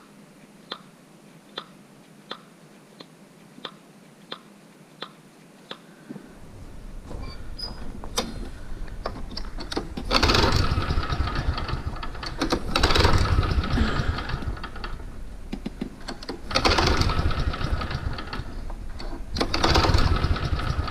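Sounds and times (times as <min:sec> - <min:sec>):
engine running with rough pulsing: 0:09.1 - 0:15.1, 0:16.0 - 0:20.9.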